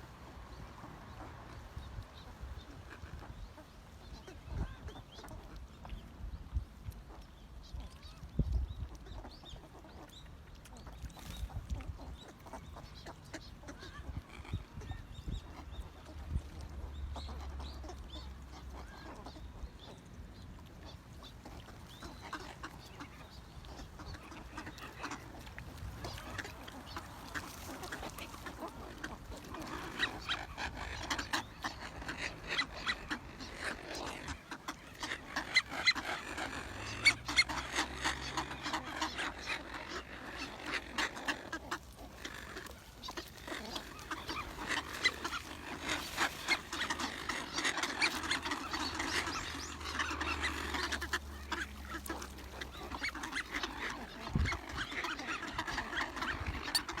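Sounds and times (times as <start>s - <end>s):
waterfowl quacking and honking: 20.7s - 57.0s.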